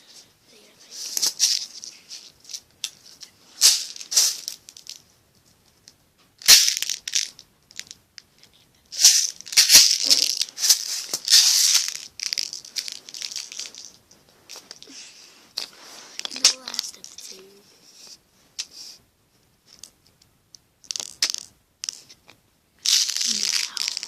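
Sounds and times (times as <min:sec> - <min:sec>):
pin art toy pins rattling: 0:00.9 - 0:05.0, 0:06.4 - 0:08.3, 0:08.9 - 0:14.9, 0:16.2 - 0:17.6, 0:20.8 - 0:22.2, 0:22.8 - 0:24.0.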